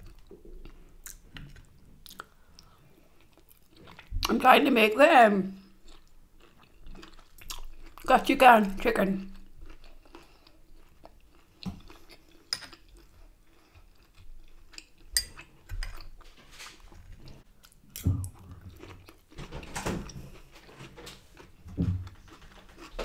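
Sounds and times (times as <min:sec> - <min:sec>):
person chewing and biting food: 0:00.0 - 0:04.3, 0:05.6 - 0:08.1, 0:09.3 - 0:16.2, 0:17.1 - 0:19.4
food crunches: 0:05.8 - 0:08.1.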